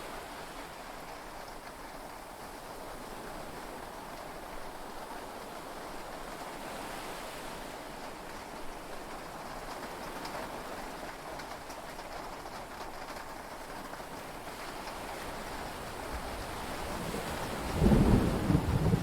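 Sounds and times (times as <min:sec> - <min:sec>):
heavy rain hiss: 0:15.2 - 0:19.0.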